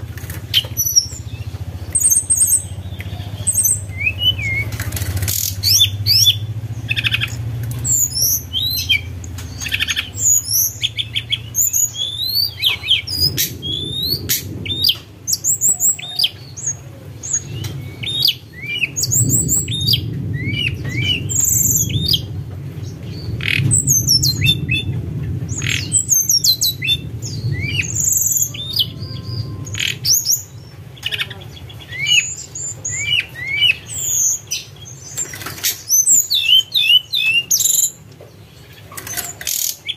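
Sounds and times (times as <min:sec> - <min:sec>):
steady low rumble: 0:00.0 - 0:35.3
bird chirps and whistles: 0:03.4 - 0:16.7, 0:35.6 - 0:38.0.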